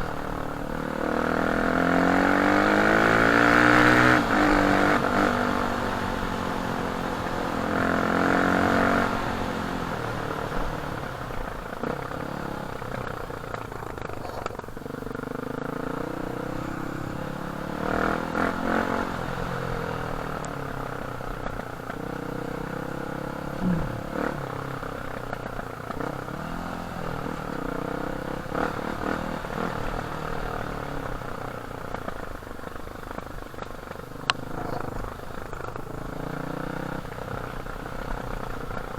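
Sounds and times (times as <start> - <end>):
dirt bike engine revving: 0.0 - 13.2, 14.8 - 31.2.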